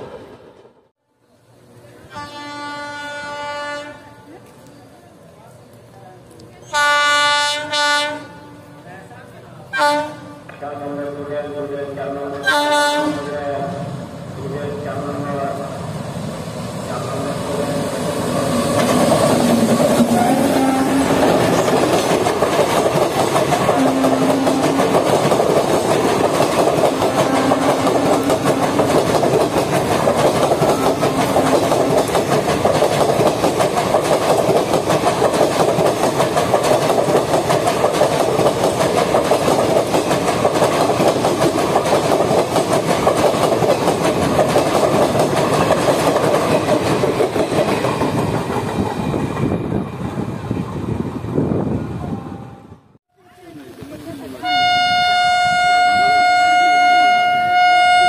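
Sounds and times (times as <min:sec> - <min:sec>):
train wheels clattering over rail joints: 0:21.1 - 0:49.6.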